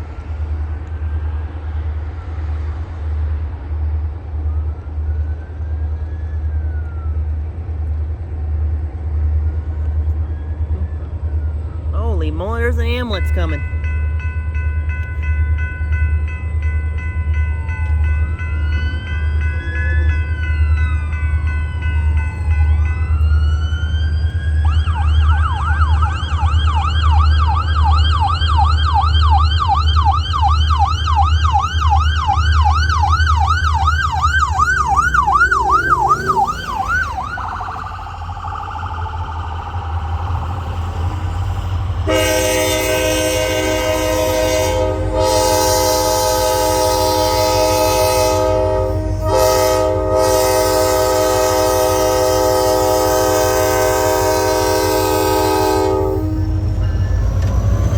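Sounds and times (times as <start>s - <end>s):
diesel locomotive rumble: 0.0s - 57.9s
ambulance siren: 4.3s - 7.9s, 10.0s - 13.7s, 17.8s - 57.9s
locomotive horn: 33.4s - 37.4s, 42.0s - 57.9s.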